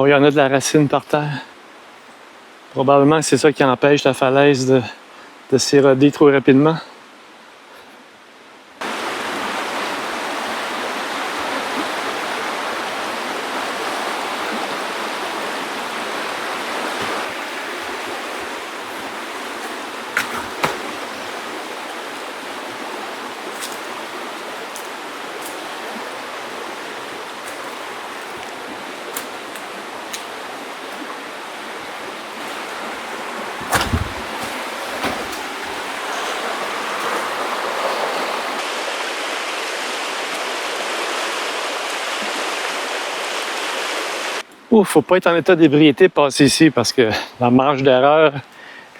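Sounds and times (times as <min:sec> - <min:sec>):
river water flowing over rocks: 0:08.8 - 0:44.4
dull thud: 0:17.0 - 0:21.6, 0:33.6 - 0:36.4
short knocks: 0:19.6 - 0:21.3, 0:33.6 - 0:36.4.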